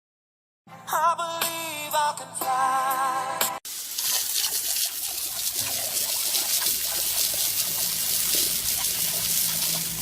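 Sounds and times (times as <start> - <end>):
water running from a tap: 3.7 - 10.0.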